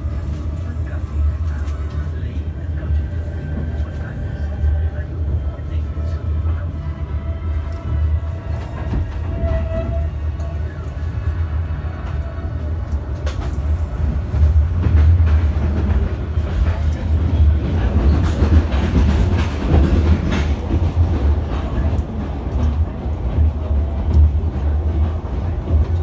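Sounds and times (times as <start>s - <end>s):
train carriage rumble: 0.0s - 26.0s.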